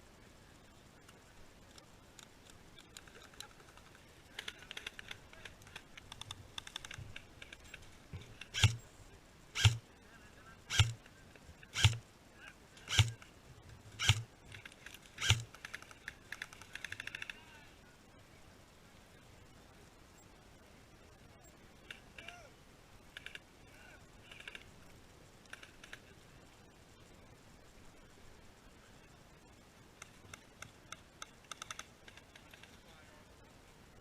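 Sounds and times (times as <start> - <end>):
fast ticking clicks: 1.0 - 8.8, 9.6 - 9.8, 10.7 - 12.0, 12.8 - 13.3, 14.0 - 17.4, 30.0 - 32.8
airsoft gun shots: 8.5 - 8.8, 9.6 - 9.8, 10.7 - 11.0, 11.7 - 12.0, 12.9 - 13.2, 14.0 - 14.2.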